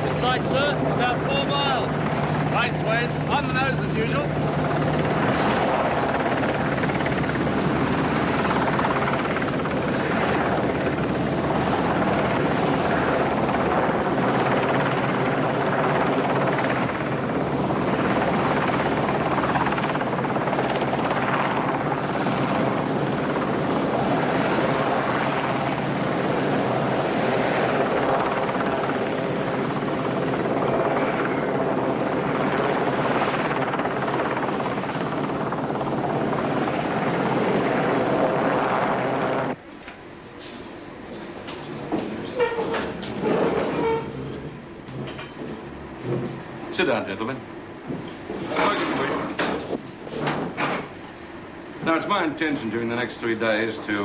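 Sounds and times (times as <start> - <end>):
large engine droning: 41.5 - 46.7.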